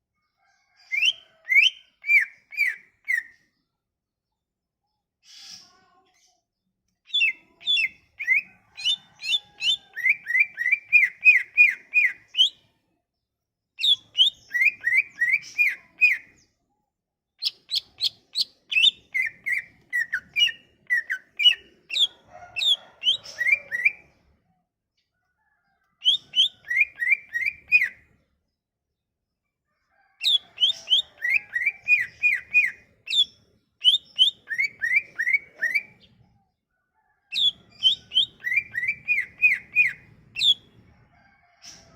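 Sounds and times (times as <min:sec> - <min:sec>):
bird singing whistled notes: 0:07.1 - 0:12.6, 0:13.8 - 0:16.3, 0:26.0 - 0:28.0, 0:30.3 - 0:36.1, 0:37.4 - 0:40.7.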